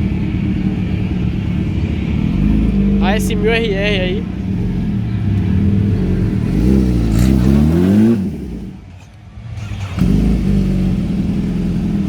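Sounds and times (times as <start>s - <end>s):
motorcycle engine running steadily: 0.0s - 12.0s
motorcycle engine revving: 2.1s - 8.9s, 9.5s - 12.0s.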